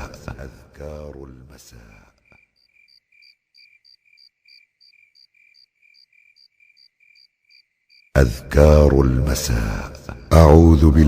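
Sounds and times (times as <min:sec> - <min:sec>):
cricket chirping: 0:01.7 - 0:08.2.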